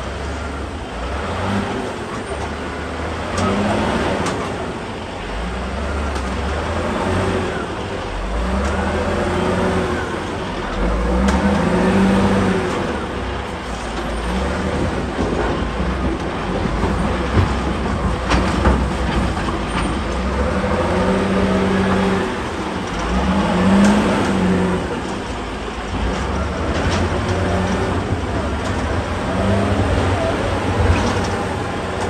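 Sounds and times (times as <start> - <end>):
excavator diesel engine: 0.0 - 32.0
hydraulics working: 0.0 - 32.0.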